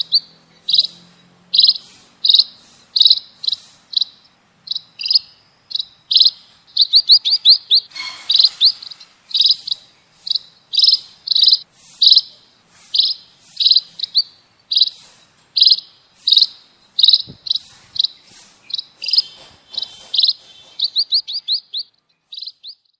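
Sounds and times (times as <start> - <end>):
birds giving high chirps: 0.0 - 22.9
brief hiss: 1.8 - 3.9, 12.7 - 14.0, 17.3 - 20.8.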